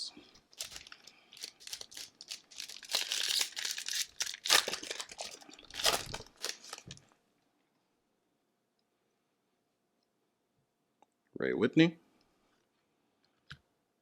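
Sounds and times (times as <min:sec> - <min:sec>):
wrapper tearing and crinkling: 0:00.5 - 0:07.0.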